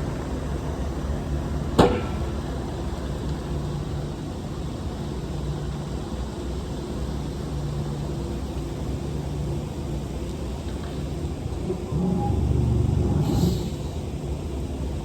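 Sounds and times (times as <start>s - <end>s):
road noise: 0.0s - 15.0s
truck diesel engine running: 10.9s - 15.0s.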